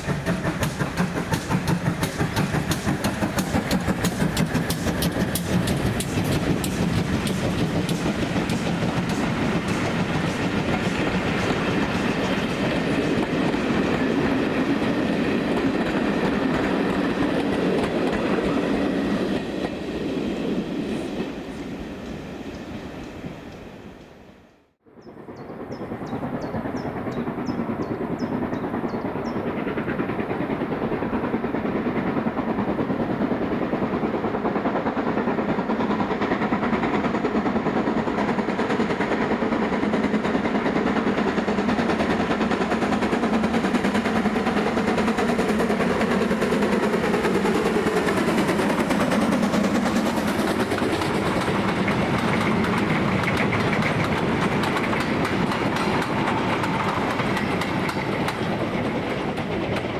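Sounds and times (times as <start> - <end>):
steam train wheels clattering: 0.0 - 24.1, 25.5 - 59.9.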